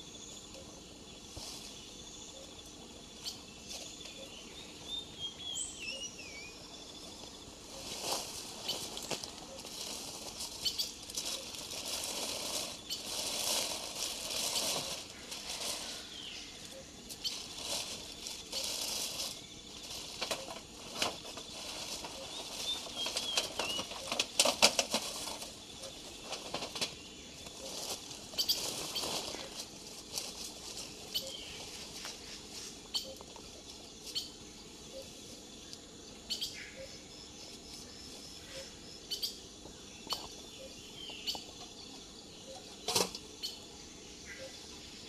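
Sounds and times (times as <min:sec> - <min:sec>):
rustling and scraping: 0:01.2 - 0:01.9, 0:07.1 - 0:34.3.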